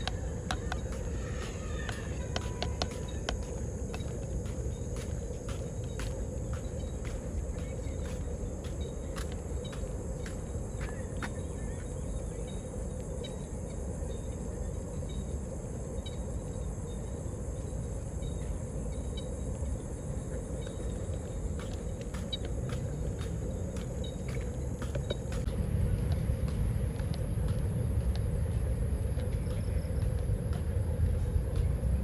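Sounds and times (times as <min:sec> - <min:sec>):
insect trilling: 0:00.0 - 0:05.0
distant city traffic rumble: 0:00.0 - 0:12.8, 0:20.4 - 0:32.0.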